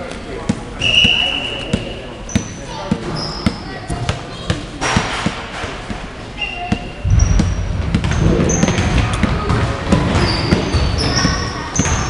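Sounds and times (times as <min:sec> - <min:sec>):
crowd chatter: 0:00.0 - 0:12.0
sneakers squeaking on court: 0:00.2 - 0:12.0
basketball bouncing: 0:06.7 - 0:12.0.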